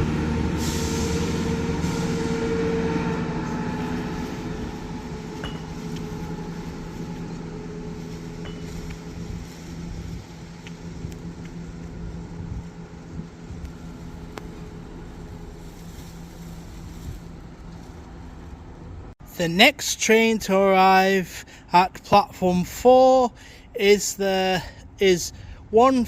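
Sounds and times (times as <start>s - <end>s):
diesel train engine humming: 0.0s - 20.2s.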